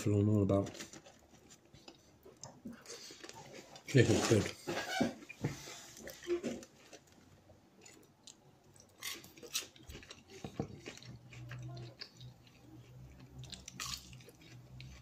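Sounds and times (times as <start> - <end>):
person chewing food: 0.7 - 4.0, 5.6 - 15.0.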